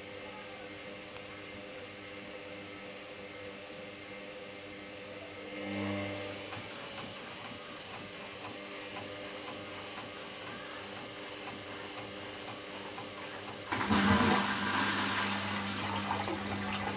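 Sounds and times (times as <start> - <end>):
washing machine drum whirring: 0.0 - 16.9.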